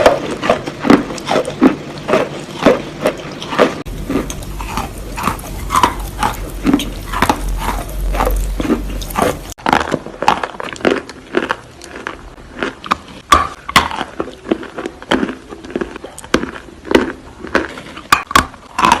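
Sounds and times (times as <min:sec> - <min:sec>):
low hum: 0:02.3 - 0:09.6.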